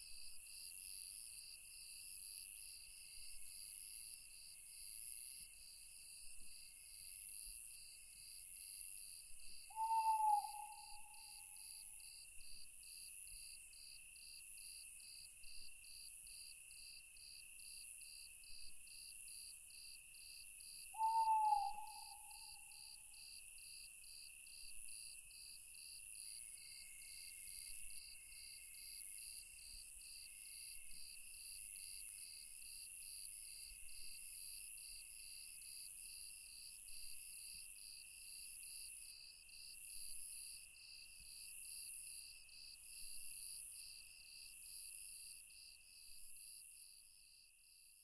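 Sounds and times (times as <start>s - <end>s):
continuous high insect trill: 0.0s - 48.0s
crickets chirping: 9.5s - 13.0s, 19.7s - 24.3s, 25.0s - 29.0s.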